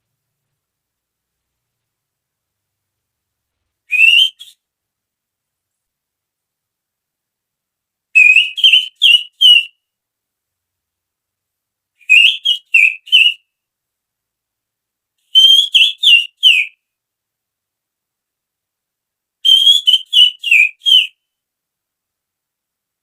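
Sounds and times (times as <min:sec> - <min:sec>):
finger whistling bird chirps: 0:03.9 - 0:04.6, 0:08.2 - 0:09.8, 0:12.0 - 0:13.4, 0:15.3 - 0:16.8, 0:19.5 - 0:21.2.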